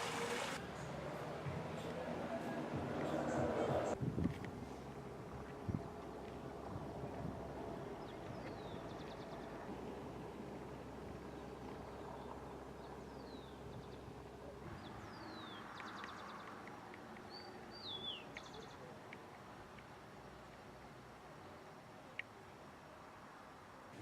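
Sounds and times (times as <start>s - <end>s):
faint outdoor background noise: 0.0s - 24.0s
birds calling: 7.8s - 9.7s, 11.2s - 19.4s.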